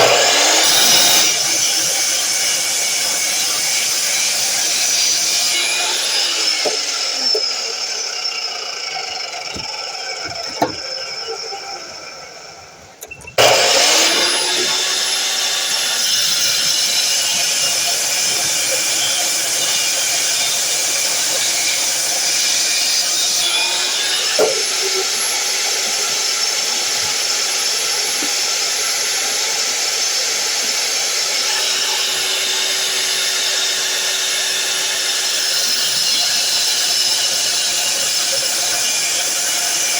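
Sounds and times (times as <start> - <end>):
miter saw motor whine: 0.0 - 39.9.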